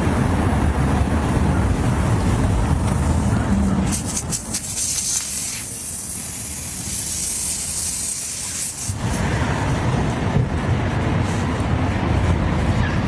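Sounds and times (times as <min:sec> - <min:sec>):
rough rumbling noise: 0:00.0 - 0:05.3, 0:06.2 - 0:13.0
high-pitched hiss: 0:03.8 - 0:09.2.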